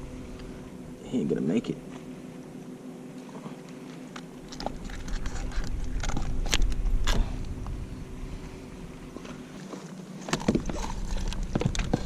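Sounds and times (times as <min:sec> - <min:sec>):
knocks and clicks in kayak: 0:09.2 - 0:12.0.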